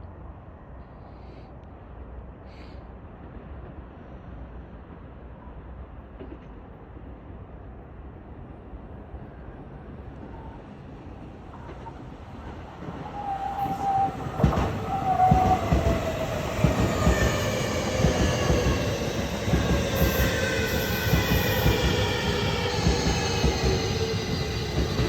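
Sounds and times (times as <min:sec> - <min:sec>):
wheels clacking on rails: 0:11.4 - 0:25.0
train braking: 0:11.6 - 0:25.0.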